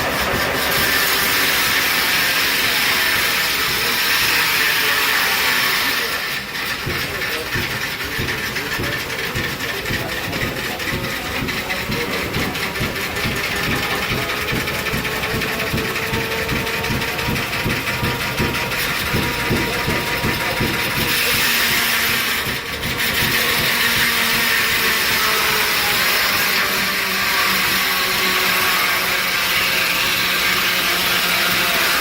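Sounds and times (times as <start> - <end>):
saw whirring hiss: 0.0 - 32.0
gasoline engine exhaust pulses: 6.2 - 26.2.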